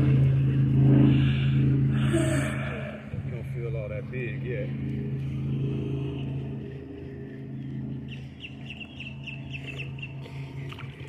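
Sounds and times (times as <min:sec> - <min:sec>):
low motor hum: 0:00.0 - 0:11.0
bird chirping: 0:07.6 - 0:10.3.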